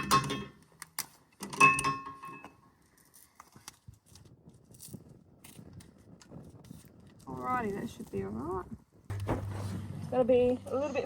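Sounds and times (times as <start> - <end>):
metal clinking and rattling: 0.0 - 0.6, 1.4 - 2.6.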